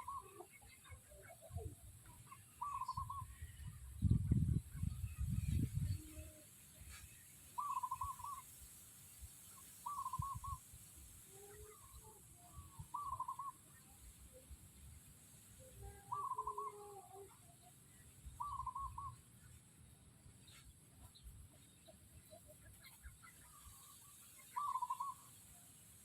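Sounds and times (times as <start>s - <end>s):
bird warbling call: 0.0s - 3.7s, 7.6s - 8.5s, 9.8s - 10.7s, 11.3s - 14.4s, 15.7s - 19.3s, 22.2s - 25.5s.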